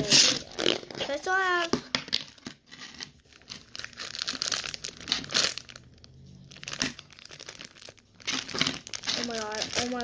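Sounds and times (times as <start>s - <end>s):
slime crackling and popping: 3.3s - 10.0s.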